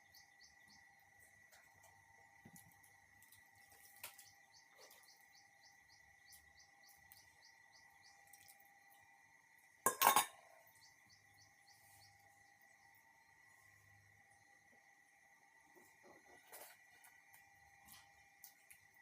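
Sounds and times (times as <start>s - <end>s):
faint high bird chirps: 0.0s - 1.9s, 3.7s - 9.1s
steady faint hum: 0.0s - 19.0s
utensil clattering against plate: 9.9s - 10.4s.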